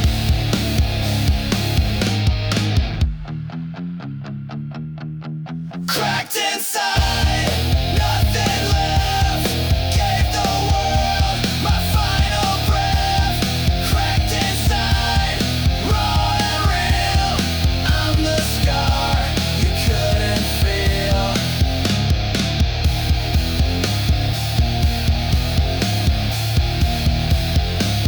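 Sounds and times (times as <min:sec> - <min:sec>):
instrumental grunge rock music: 0:00.0 - 0:28.0.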